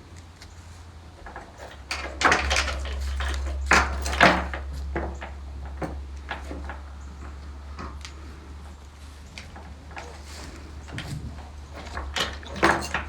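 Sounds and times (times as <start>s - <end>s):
door rattling and knocking: 1.2s - 7.4s, 10.8s - 13.0s.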